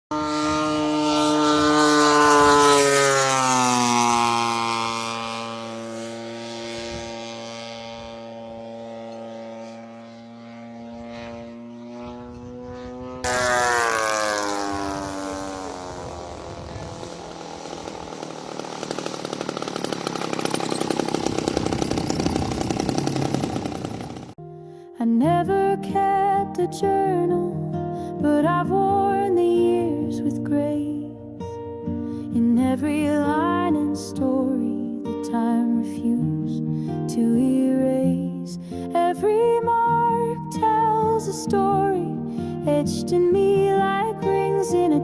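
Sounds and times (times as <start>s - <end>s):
model aeroplane engine passing by: 0.1s - 24.4s.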